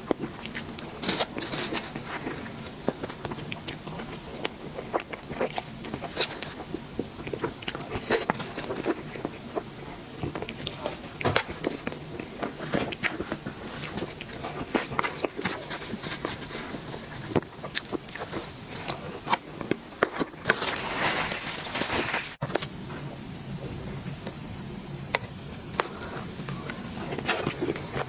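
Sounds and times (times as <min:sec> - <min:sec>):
wet eating smacks and chewing: 0:00.1 - 0:20.5.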